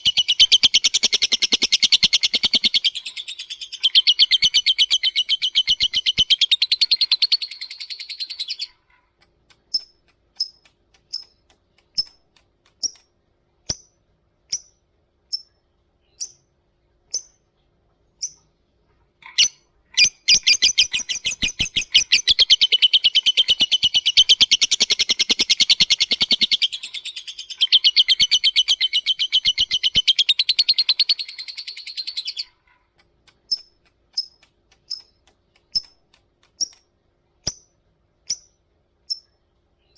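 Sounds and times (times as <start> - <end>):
bird chattering trill: 0.0 - 8.8, 19.2 - 32.6
sharp bird chirps: 0.0 - 8.8, 19.3 - 32.6.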